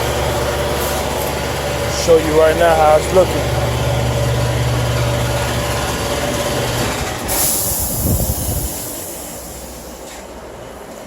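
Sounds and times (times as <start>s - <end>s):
low machine hum: 0.0s - 11.0s
air hissing: 7.2s - 10.4s.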